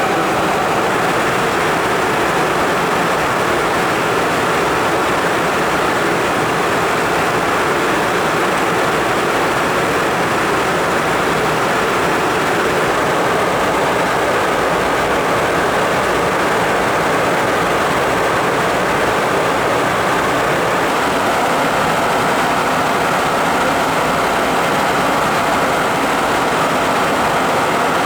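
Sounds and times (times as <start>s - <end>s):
jet cabin rushing noise: 0.0s - 2.0s.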